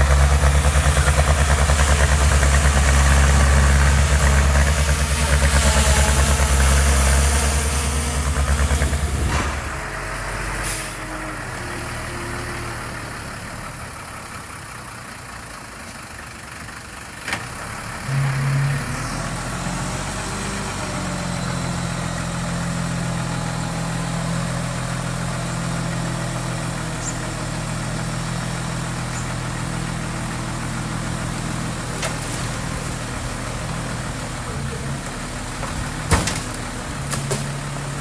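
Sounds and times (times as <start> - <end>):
diesel engine of heavy machinery: 0.0 - 38.0.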